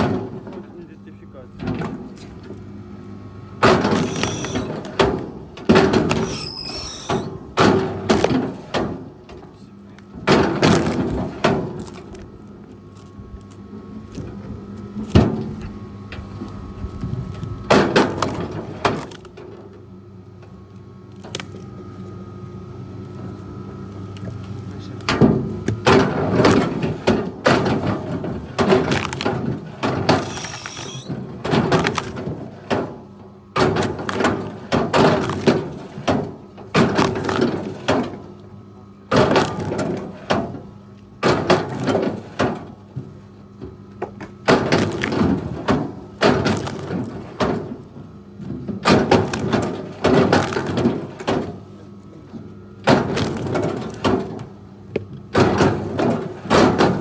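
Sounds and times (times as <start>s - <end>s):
heavy machine engine running: 3.6s - 12.0s, 24.2s - 32.4s
wood cracking and crashing: 3.7s - 5.0s, 25.9s - 32.5s, 33.6s - 38.1s, 39.1s - 40.2s, 44.5s - 47.8s, 48.8s - 51.6s, 52.8s - 54.4s.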